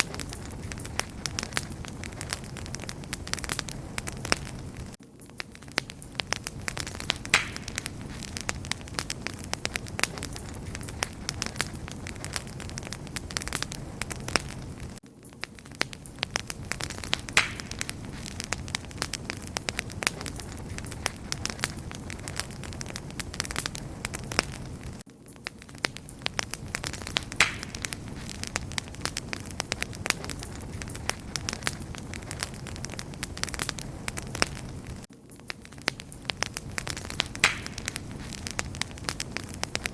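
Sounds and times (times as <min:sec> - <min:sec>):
low fire rumble: 0:00.0 - 0:39.9
wood fire crackling: 0:00.0 - 0:39.9
loud fire pop: 0:05.8 - 0:15.0, 0:16.3 - 0:25.1, 0:26.4 - 0:35.1, 0:35.9 - 0:39.9.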